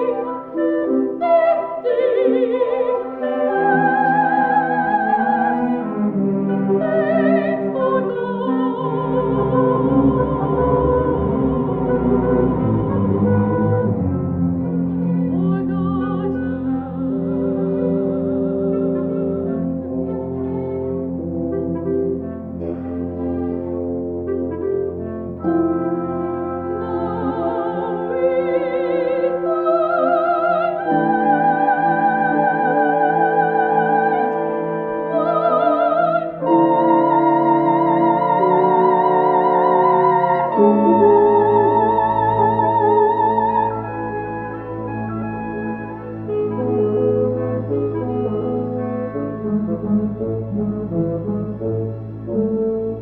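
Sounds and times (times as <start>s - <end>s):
soprano singing with vibrato: 0.0s - 13.7s, 15.1s - 20.7s, 26.0s - 44.9s
orchestra playing: 0.0s - 53.0s.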